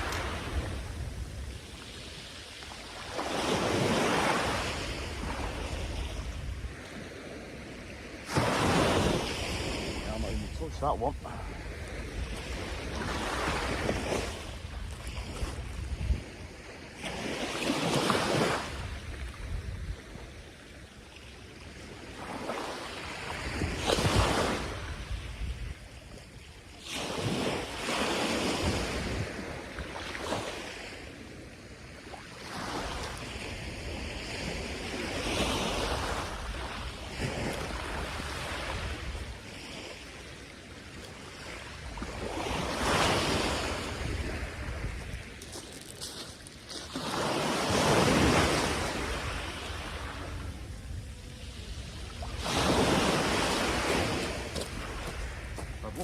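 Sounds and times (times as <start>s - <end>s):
surf breaking on beach: 0.0s - 7.2s, 8.2s - 16.4s, 41.3s - 56.0s
wind rumbling on microphone: 0.0s - 20.7s, 23.2s - 30.3s, 32.8s - 46.7s, 47.5s - 56.0s.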